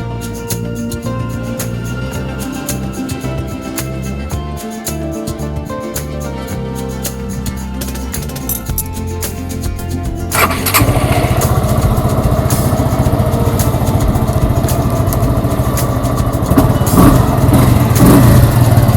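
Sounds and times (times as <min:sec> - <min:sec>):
motorcycle engine idling: 0:07.5 - 0:18.9
motorcycle engine starting: 0:10.3 - 0:18.9.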